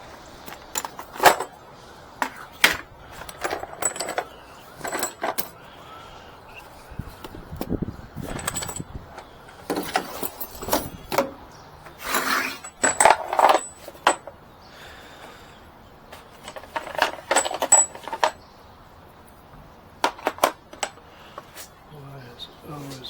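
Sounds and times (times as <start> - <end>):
metal parts and tools clinking: 0.4 - 1.6, 2.2 - 5.6, 8.2 - 14.4, 16.1 - 18.4, 20.0 - 21.0.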